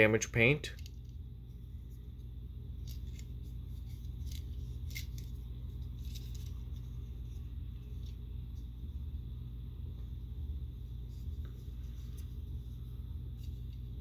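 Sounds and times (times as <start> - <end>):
steady low hum: 0.0 - 14.0
plastic toy clicks and rubs: 2.8 - 6.8.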